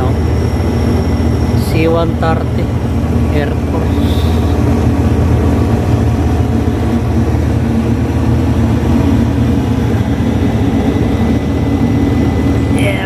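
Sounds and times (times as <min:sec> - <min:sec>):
turboprop engines droning: 0:00.0 - 0:13.0.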